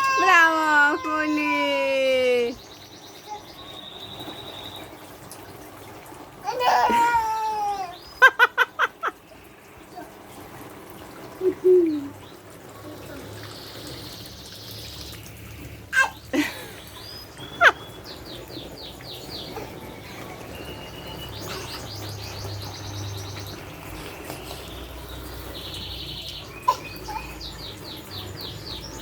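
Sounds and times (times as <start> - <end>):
birds chirping: 0.0 - 5.7, 6.6 - 29.0.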